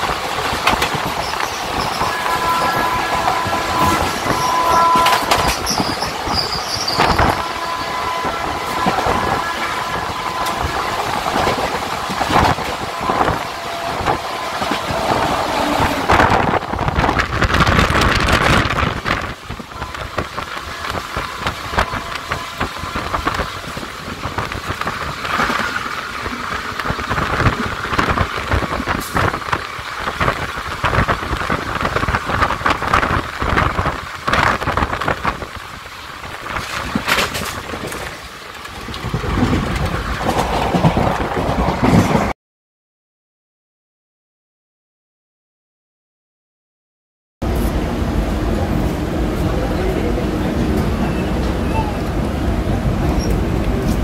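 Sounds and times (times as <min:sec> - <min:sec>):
wind buffeting: 0:00.0 - 0:42.3
passing train alongside: 0:00.0 - 0:42.4, 0:47.4 - 0:54.0
train wheels rumbling and clattering: 0:00.0 - 0:42.4, 0:47.4 - 0:54.0
high wheel squeal: 0:01.1 - 0:10.6.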